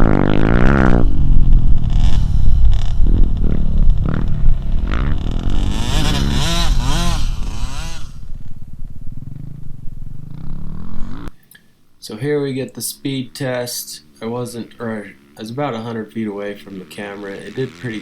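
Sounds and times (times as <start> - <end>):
dirt bike engine revving: 0.0 - 11.4, 13.8 - 18.0.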